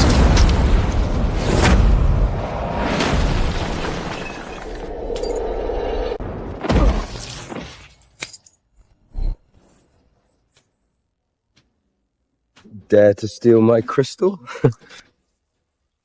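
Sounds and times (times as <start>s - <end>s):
rumbling blast: 0.0s - 4.7s
sudden crash: 0.0s - 7.6s.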